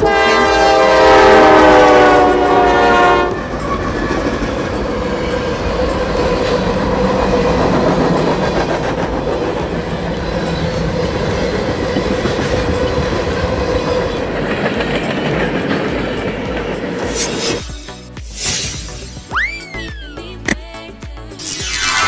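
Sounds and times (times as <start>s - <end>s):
locomotive horn: 0.0s - 3.7s
freight train rolling past: 0.0s - 19.2s.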